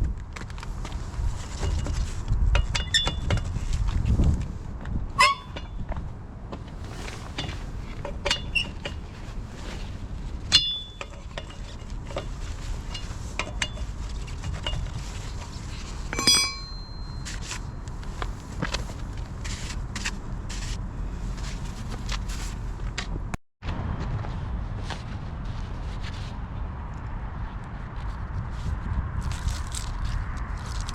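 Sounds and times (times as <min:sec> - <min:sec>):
steady low rumble: 0:00.0 - 0:30.9
sharp metallic rings: 0:05.2 - 0:05.8, 0:10.5 - 0:11.1, 0:16.1 - 0:17.8
metal tools clinking: 0:16.1 - 0:17.7.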